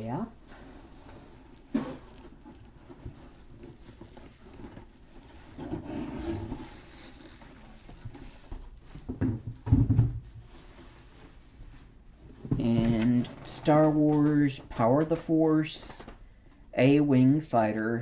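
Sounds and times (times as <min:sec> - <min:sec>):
bubble wrap crinkling: 0:00.1 - 0:09.1
packaging rustling: 0:00.5 - 0:09.6, 0:10.4 - 0:16.6.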